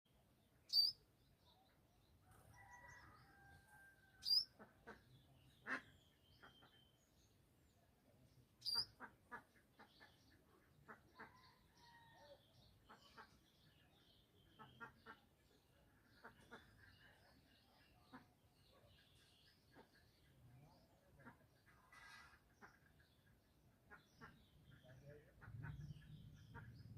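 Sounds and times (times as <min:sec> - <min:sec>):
sharp high bird calls: 0:00.7 - 0:01.0, 0:04.2 - 0:04.6, 0:08.6 - 0:09.0.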